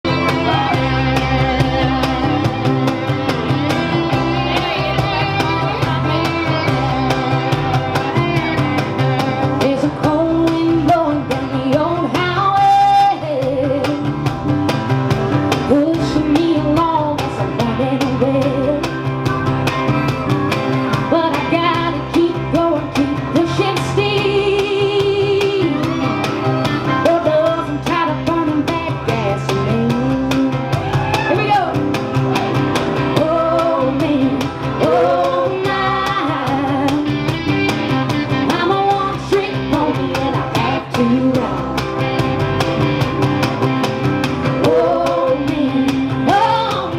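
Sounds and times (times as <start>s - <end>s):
bass guitar: 0.0s - 46.9s
drums beating: 0.0s - 46.9s
electric guitar: 0.0s - 46.9s
person singing: 21.0s - 31.1s, 33.1s - 37.3s, 38.3s - 42.0s, 44.6s - 46.9s.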